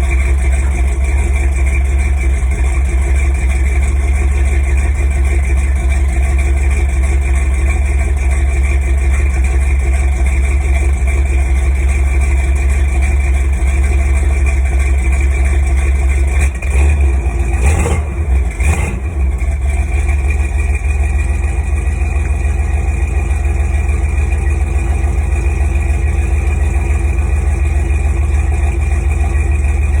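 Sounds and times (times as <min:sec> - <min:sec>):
engine idling: 0:00.0 - 0:30.0
engine noise bursts: 0:16.2 - 0:21.1.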